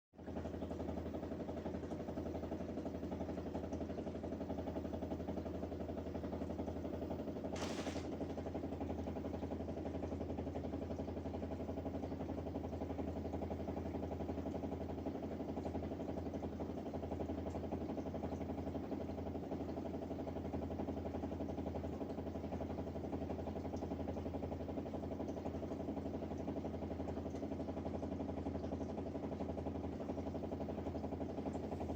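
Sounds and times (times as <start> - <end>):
dishwasher mechanical hum: 0.2 - 31.9
brief hiss: 7.6 - 8.2.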